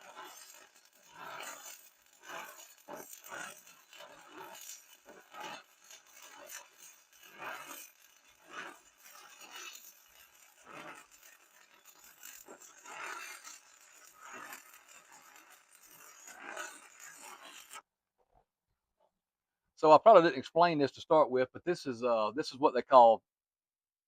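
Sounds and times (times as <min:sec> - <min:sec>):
welding arc crackling: 0:00.0 - 0:17.8.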